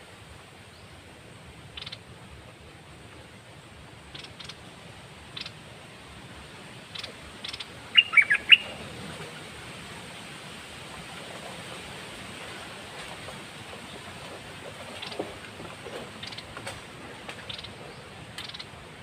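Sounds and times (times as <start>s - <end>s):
songbird chirping: 5.4s - 5.6s, 6.9s - 8.8s, 17.4s - 18.8s.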